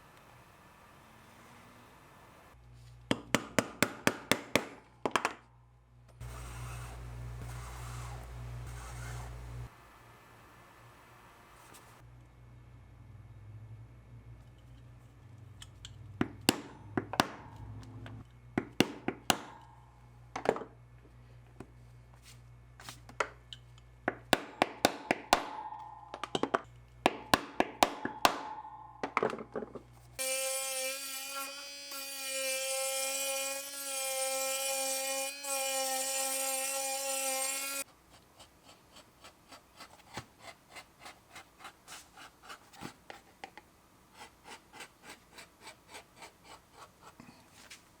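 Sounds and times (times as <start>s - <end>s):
soft regular rubbing strokes: 6.2s - 9.7s.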